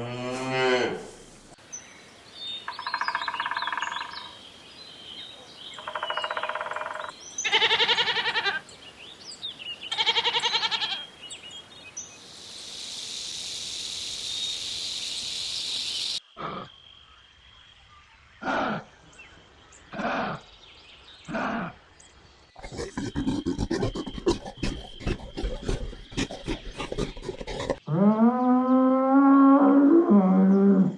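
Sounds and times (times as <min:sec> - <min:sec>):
steady hiss: 0:11.2 - 0:16.2
rough animal calls: 0:22.6 - 0:28.5.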